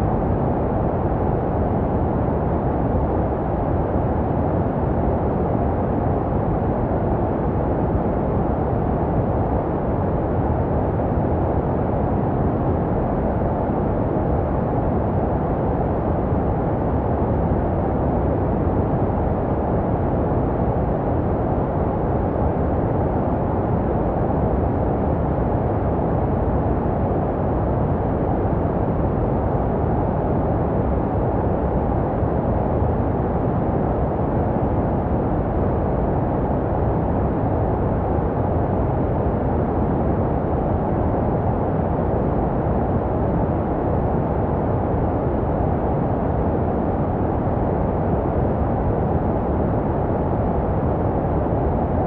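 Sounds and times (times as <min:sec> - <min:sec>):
deep muffled white noise hiss: 0:00.0 - 0:52.0.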